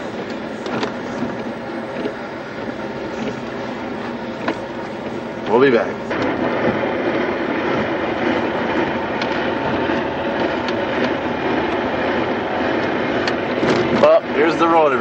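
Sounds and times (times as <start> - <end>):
truck engine drone: 0.0 - 15.0
tyres on the road: 0.0 - 15.0.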